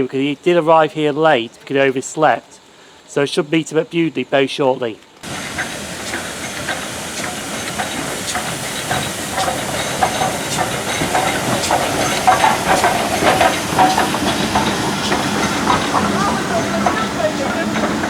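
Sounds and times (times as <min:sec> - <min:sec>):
steam locomotive hissing: 0:05.2 - 0:18.0
train wheels clanking: 0:05.2 - 0:18.0.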